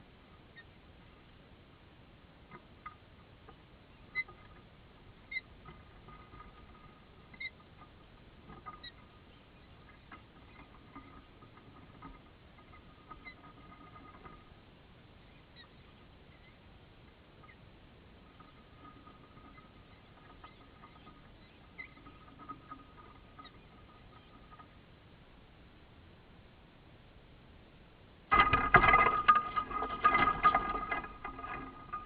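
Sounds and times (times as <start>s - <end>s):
faint bird chirps: 0.3s - 1.3s, 2.6s - 14.5s, 15.1s - 16.7s, 17.3s - 24.8s.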